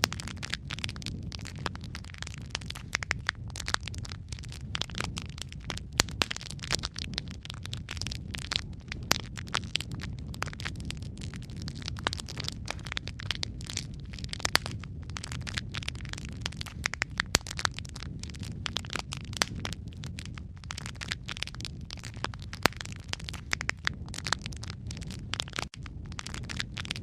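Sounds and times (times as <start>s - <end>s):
crackling and popping logs: 0.0s - 27.0s
low rumble of flames: 0.0s - 27.0s.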